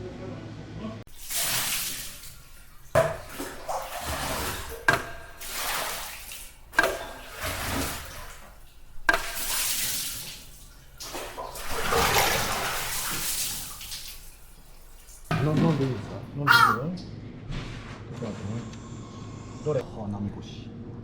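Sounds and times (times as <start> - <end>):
water splashing: 1.1 - 15.4.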